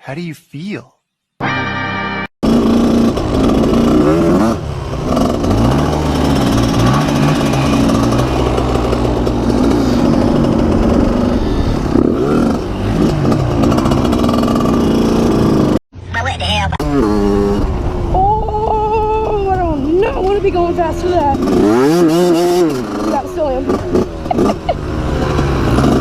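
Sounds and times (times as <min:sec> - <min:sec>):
dirt bike engine revving: 0:02.4 - 0:15.8, 0:16.8 - 0:18.1, 0:20.0 - 0:26.0.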